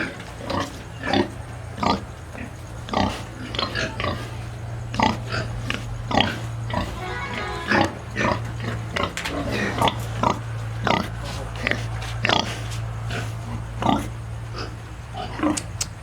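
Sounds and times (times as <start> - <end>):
pigs grunting: 0.0 - 15.7
steady low hum: 4.2 - 16.0
pig squealing: 6.1 - 8.8.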